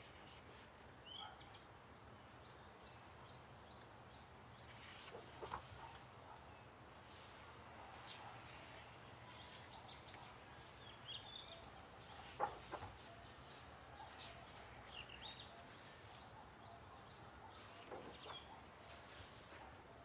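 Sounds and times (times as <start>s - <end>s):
paper pages turning: 0.0s - 0.8s, 4.7s - 6.1s, 6.9s - 8.8s, 12.1s - 16.2s, 17.6s - 19.8s
faint bird chirps: 8.0s - 20.0s.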